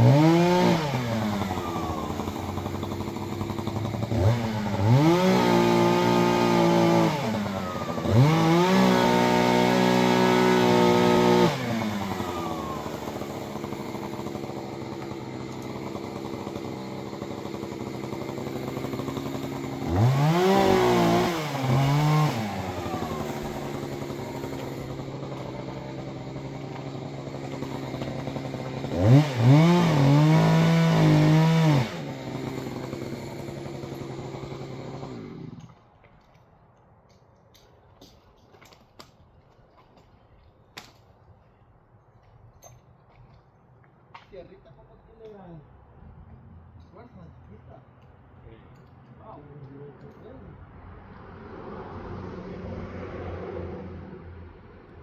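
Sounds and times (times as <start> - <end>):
chainsaw revving and idling: 0.0 - 35.9, 48.5 - 55.0.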